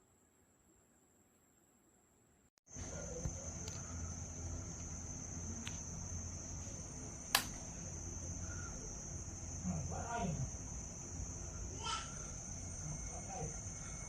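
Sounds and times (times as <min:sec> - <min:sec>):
low steady hum: 0:02.7 - 0:14.0
high-pitched insect-like trill: 0:02.9 - 0:14.0
sharp click: 0:07.3 - 0:07.6.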